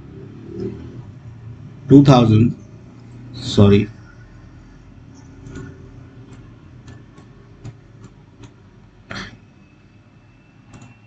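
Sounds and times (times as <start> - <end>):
low steady hum: 0.0 - 11.0
light irregular clicks: 5.1 - 8.6, 10.7 - 11.0.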